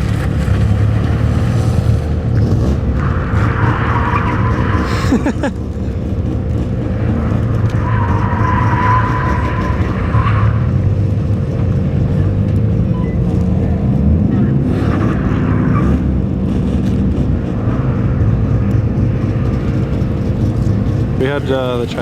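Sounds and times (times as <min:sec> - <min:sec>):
car engine under throttle: 0:00.0 - 0:22.0.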